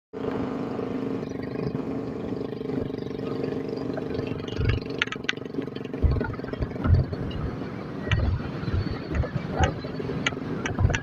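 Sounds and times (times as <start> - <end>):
motorcycle engine running: 0.2 - 11.0
sharp clicks: 4.5 - 6.3
low thumps: 5.9 - 9.8.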